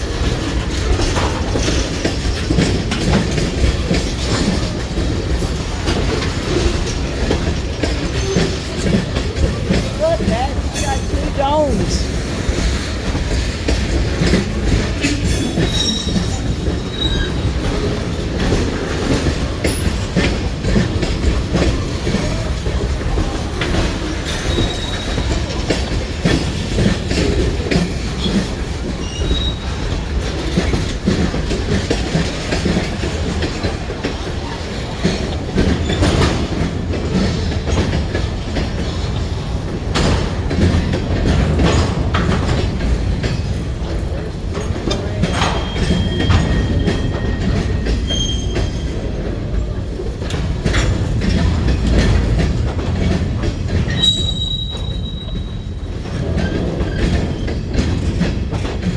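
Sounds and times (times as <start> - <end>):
train wheels clacking on rails: 0.0 - 58.9
high-pitched wheel squeals: 53.9 - 55.7.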